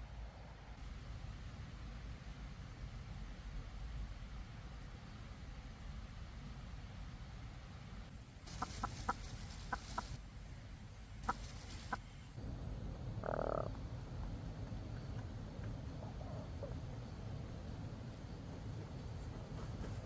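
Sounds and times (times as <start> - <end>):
animal calls: 8.5 - 10.2, 11.2 - 12.0, 13.1 - 14.3
steady low rumble: 8.5 - 20.0.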